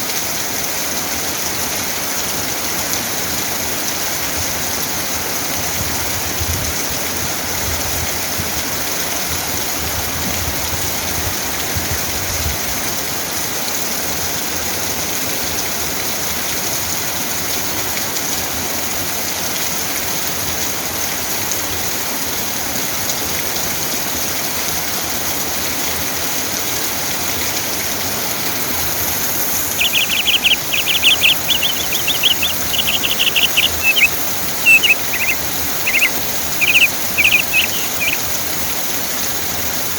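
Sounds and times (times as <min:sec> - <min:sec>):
steady rain hiss: 0:25.2 - 0:39.9
rapid high chirping call: 0:28.5 - 0:39.4.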